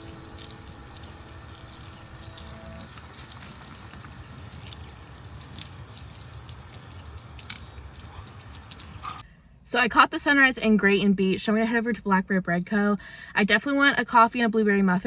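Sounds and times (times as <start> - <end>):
background music with held notes: 0.0 - 2.8.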